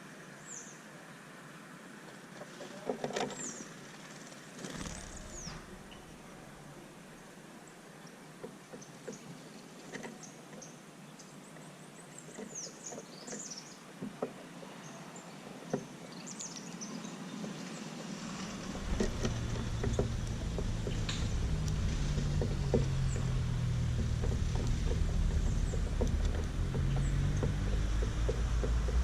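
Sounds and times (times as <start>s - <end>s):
small birds chirping: 3.3s - 29.0s
low rumble: 4.9s - 6.6s, 18.4s - 29.0s
light clicks and taps: 18.6s - 29.0s.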